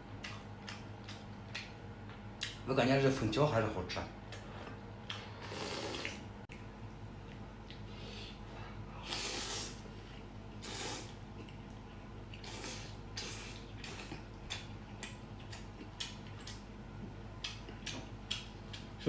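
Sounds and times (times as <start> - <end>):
wet eating clicks: 0.2 - 1.8, 13.2 - 16.7, 17.4 - 19.0
slurping noodles: 5.3 - 6.2, 9.0 - 9.8, 10.6 - 11.2.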